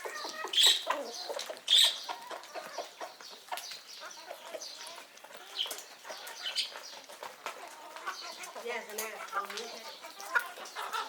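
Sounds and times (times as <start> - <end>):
chicken squawk: 0.0 - 2.9
chickens clucking: 0.0 - 11.0.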